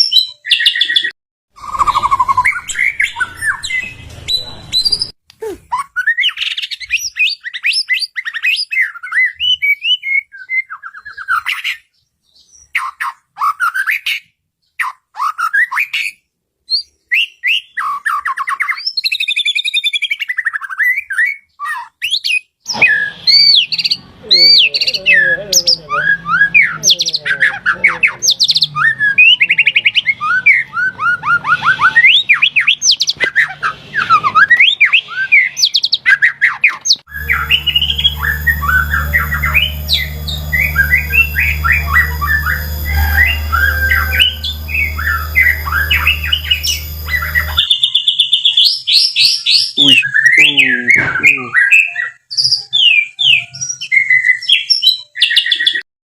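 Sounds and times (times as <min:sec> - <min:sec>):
bird singing whistles and trills: 0:14.8 - 0:27.2, 0:48.6 - 0:55.8
low hum: 0:37.1 - 0:47.8.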